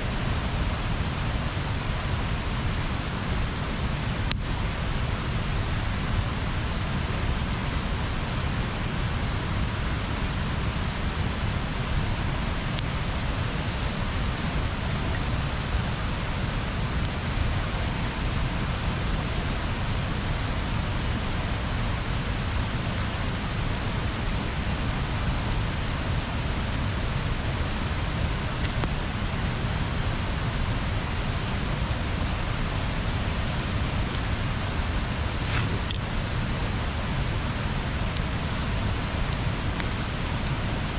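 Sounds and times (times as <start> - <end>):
bonfire burning: 0.2 - 40.9
fire popping: 32.2 - 40.9.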